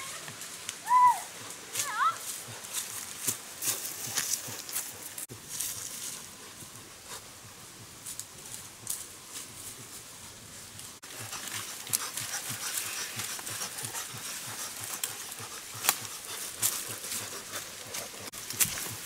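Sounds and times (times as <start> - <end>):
rustling: 0.0 - 19.0
dog panting: 11.0 - 18.4.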